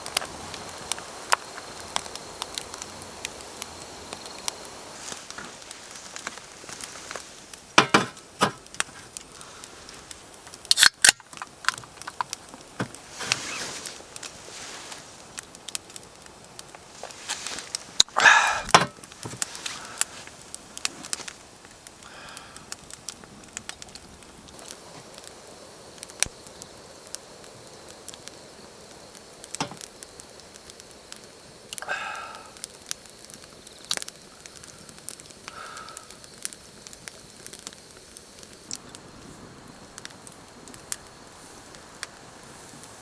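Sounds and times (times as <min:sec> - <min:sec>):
campfire crackling and popping: 0:00.0 - 0:43.0.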